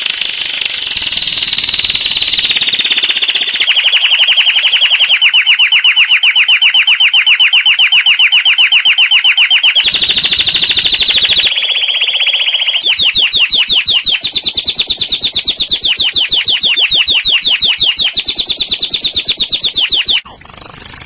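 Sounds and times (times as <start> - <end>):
canary singing fast trills: 0.0 - 21.0.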